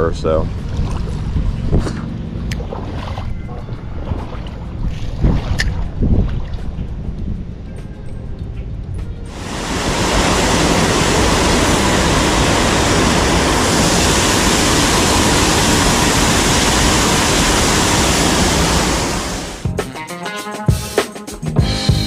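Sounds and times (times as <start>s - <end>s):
water rushing over a dam: 9.3s - 19.6s.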